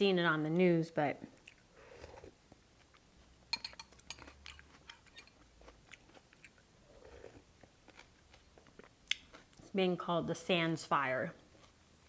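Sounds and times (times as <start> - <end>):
chewing crisp cucumber: 1.3 - 3.4, 4.0 - 9.7.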